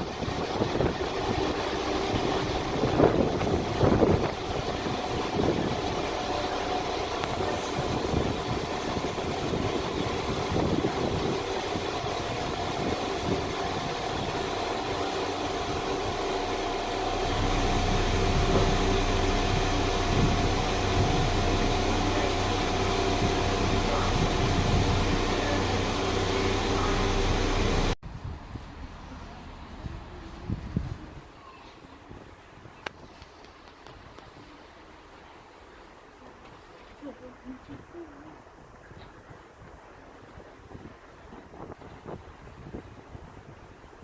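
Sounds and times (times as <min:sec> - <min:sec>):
deep low hum: 0:00.0 - 0:30.9
train engine running: 0:00.0 - 0:31.4.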